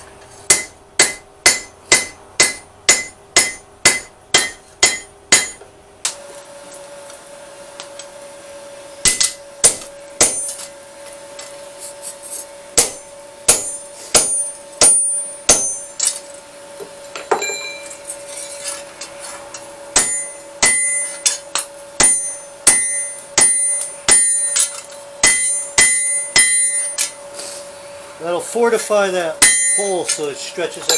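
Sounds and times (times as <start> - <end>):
steady hum: 0.0 - 30.9
hammer striking anvil: 0.5 - 6.2, 9.0 - 10.7, 12.8 - 16.2, 17.2 - 18.0, 20.0 - 27.2, 29.4 - 30.9.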